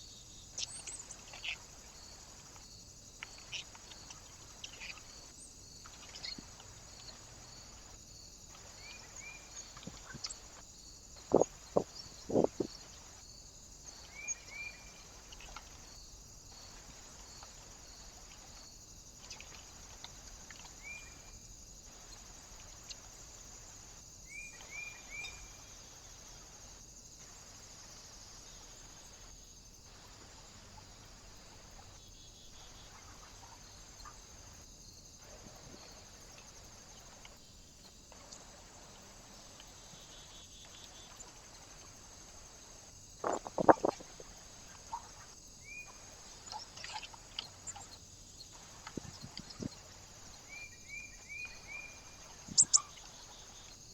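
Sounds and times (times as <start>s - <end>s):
small bird chirping: 0.0s - 13.3s, 13.9s - 16.0s, 24.3s - 25.7s, 38.1s - 53.9s
steady high hiss: 19.6s - 53.9s.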